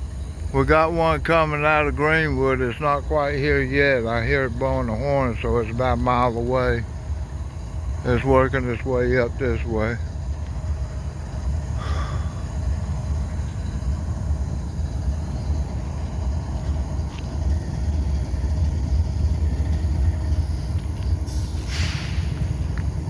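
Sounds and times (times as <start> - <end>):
diesel locomotives idling: 0.0 - 23.0
short burst of hiss: 21.3 - 22.7.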